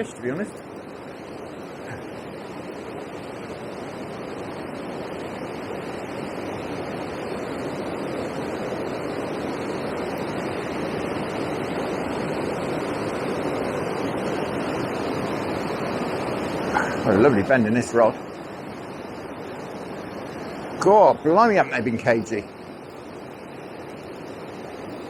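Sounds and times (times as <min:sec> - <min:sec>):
water rushing over a weir: 0:00.0 - 0:25.0.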